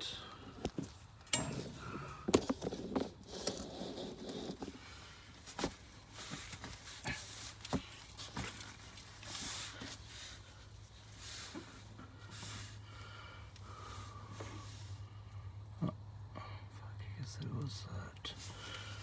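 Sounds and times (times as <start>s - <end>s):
tools handling engine parts: 0.5s - 12.8s.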